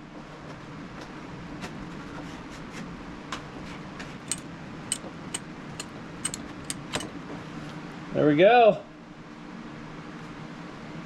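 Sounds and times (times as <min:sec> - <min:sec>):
steady low hum: 0:03.9 - 0:08.1
metal clicks and taps: 0:04.3 - 0:07.1.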